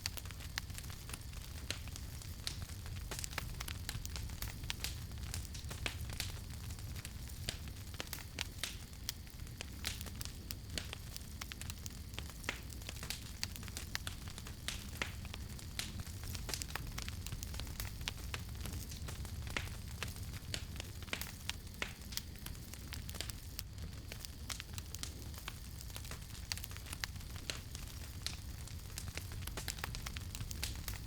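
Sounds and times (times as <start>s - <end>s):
campfire crackling: 0.0s - 31.0s.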